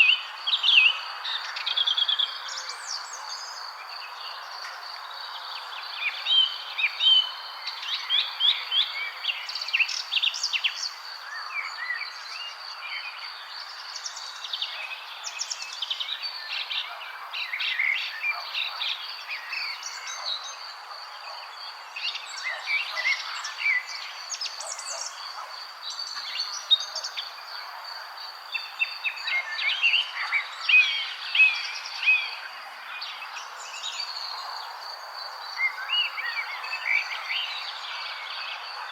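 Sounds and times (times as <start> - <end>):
birds chirping and trilling: 5.8 - 32.5.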